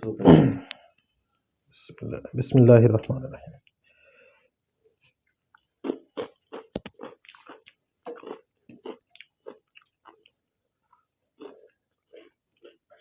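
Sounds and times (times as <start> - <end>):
chewing and mouth smacking: 5.0 - 13.0.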